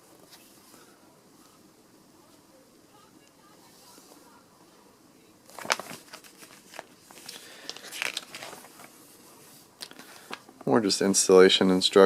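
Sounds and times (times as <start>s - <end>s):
paper pages rustling: 5.5s - 10.4s.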